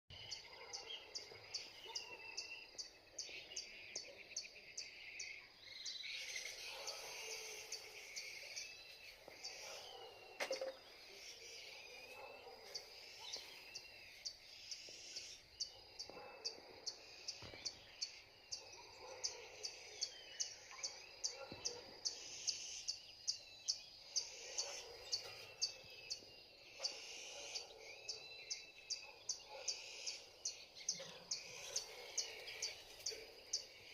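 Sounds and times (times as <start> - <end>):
wild birds singing: 0.1 - 33.9.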